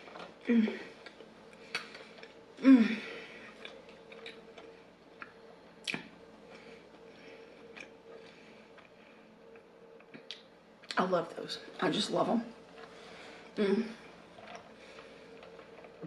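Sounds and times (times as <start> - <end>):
person chewing food: 3.5 - 11.0.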